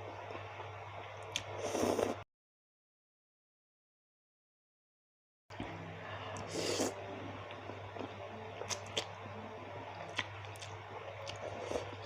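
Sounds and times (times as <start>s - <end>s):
low hum: 5.5s - 12.0s
wet chewing: 10.1s - 12.0s.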